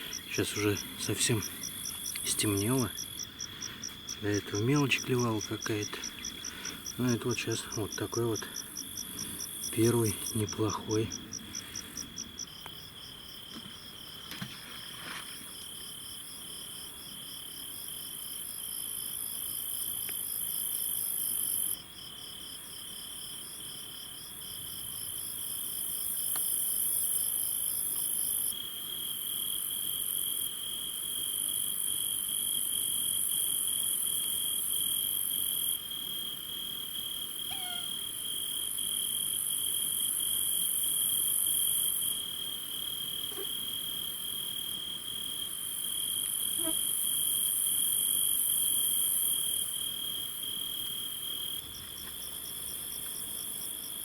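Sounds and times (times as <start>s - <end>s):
fast rhythmic insect chirping: 0.0s - 14.2s
steady high insect trill: 0.0s - 54.0s.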